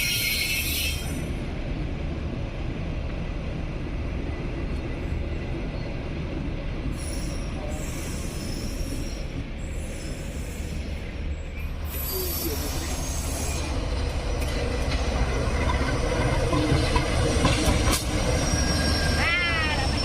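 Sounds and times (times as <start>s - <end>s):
train wheel squeals: 0.0s - 1.3s, 6.9s - 14.7s, 15.5s - 20.0s
train rumbling on track: 0.0s - 20.0s.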